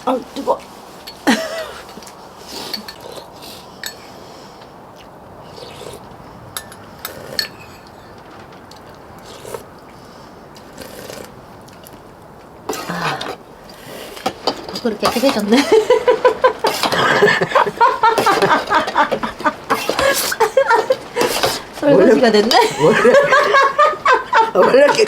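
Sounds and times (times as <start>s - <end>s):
spoon clinking and scraping bowl: 6.6s - 8.2s.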